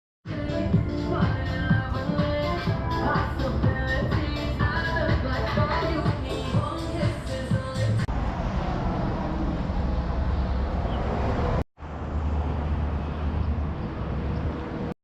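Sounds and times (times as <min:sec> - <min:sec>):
music: 0:00.3 - 0:08.1
steady low rumble: 0:00.3 - 0:14.6.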